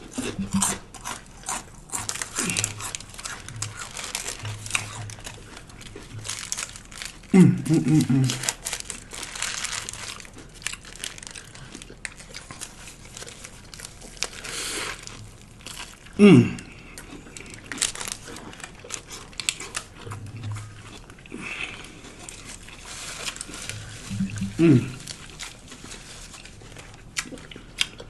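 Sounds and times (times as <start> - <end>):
chewing and crunching: 0.0 - 28.0
paper wrapper crinkling: 2.0 - 16.1, 17.4 - 20.0, 21.9 - 27.0
vocal sound dropping in pitch: 24.1 - 25.0.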